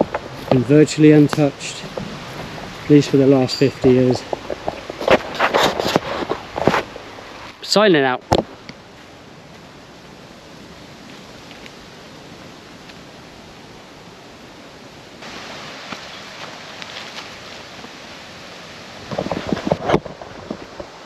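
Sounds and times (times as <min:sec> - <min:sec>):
light rustling and ticks: 0:00.0 - 0:07.6, 0:11.1 - 0:11.8, 0:15.8 - 0:18.0
wind through woodland: 0:00.0 - 0:21.0.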